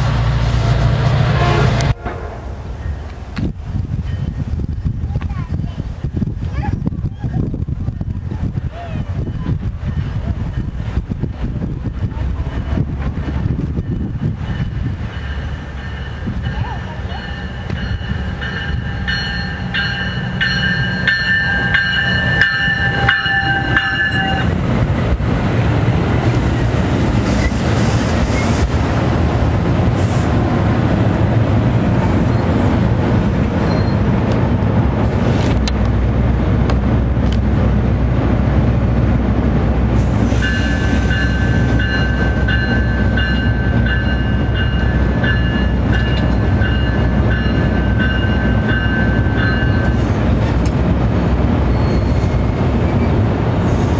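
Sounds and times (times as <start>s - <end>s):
train rumbling and clattering past: 0.0s - 53.9s
train horn blasts: 1.3s - 2.6s, 22.6s - 24.6s.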